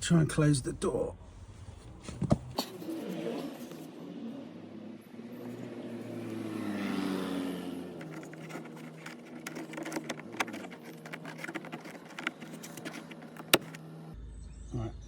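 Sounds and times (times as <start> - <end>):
vehicle engine passing by: 2.6 - 14.2.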